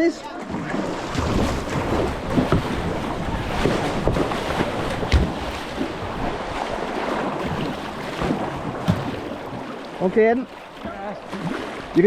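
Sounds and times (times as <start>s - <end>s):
paddle splashes: 0.0s - 12.0s
river water rushing: 0.2s - 12.0s
wind buffeting microphone: 0.5s - 10.0s.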